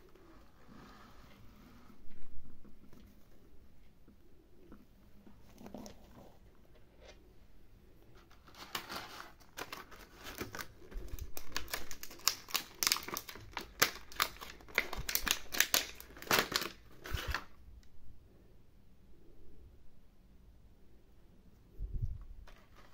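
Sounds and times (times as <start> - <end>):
plastic packaging crinkling: 8.4 - 17.6.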